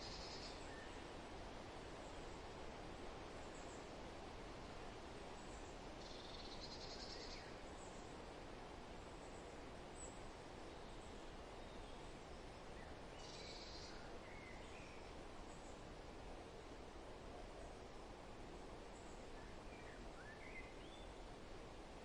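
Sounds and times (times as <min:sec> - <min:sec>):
faint bird chirps: 0:00.0 - 0:01.0, 0:05.4 - 0:08.1, 0:12.8 - 0:15.8
songbird trill: 0:00.0 - 0:01.0, 0:05.4 - 0:08.2, 0:09.2 - 0:15.8, 0:18.9 - 0:21.4
wind rustling foliage: 0:00.0 - 0:22.0.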